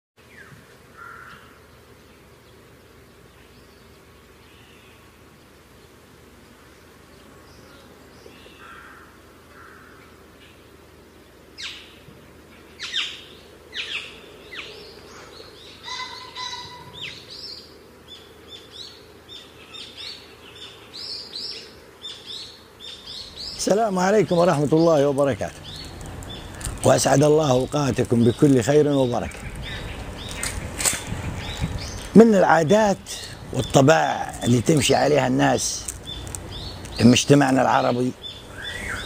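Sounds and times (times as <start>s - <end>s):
steady background hum: 0.2s - 39.0s
birds chirping and calling: 11.6s - 39.0s.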